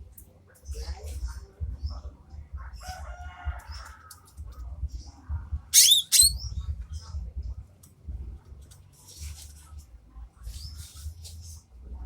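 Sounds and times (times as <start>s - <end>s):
bird call with sharp high notes: 5.8s - 6.4s.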